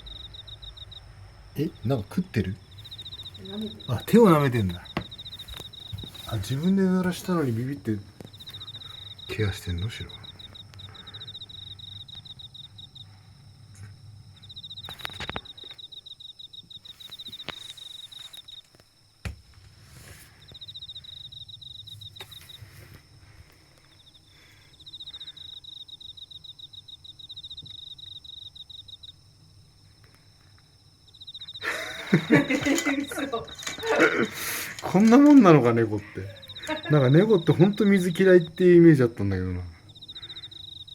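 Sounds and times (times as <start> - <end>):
low steady hum: 0.0 - 15.6
insect trilling: 0.0 - 40.9.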